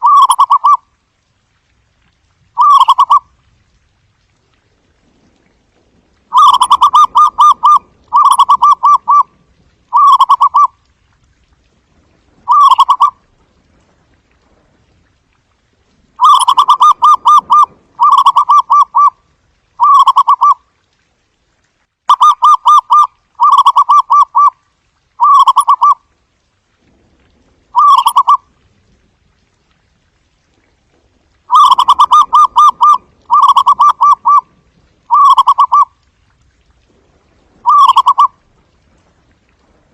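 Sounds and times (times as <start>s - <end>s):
dove cooing: 0.0s - 0.8s, 2.6s - 3.2s, 6.3s - 9.3s, 9.9s - 10.7s, 12.5s - 13.2s, 16.2s - 19.1s, 19.8s - 20.6s, 25.2s - 26.0s, 27.8s - 28.4s, 31.5s - 34.5s, 35.1s - 35.9s, 37.6s - 38.3s.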